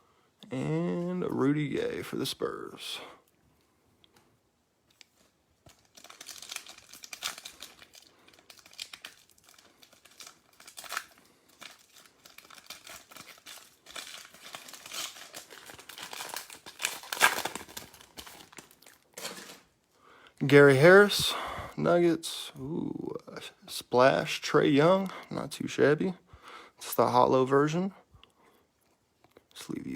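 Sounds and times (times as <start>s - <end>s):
plastic wrapper crinkling and tearing: 4.9s - 19.8s.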